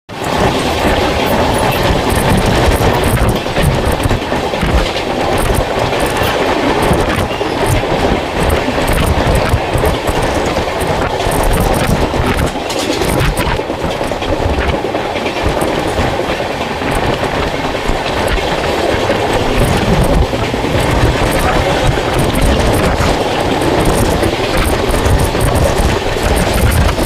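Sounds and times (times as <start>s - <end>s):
train rumbling on track: 0.1s - 27.0s
wheels clacking over rail joints: 0.1s - 27.0s.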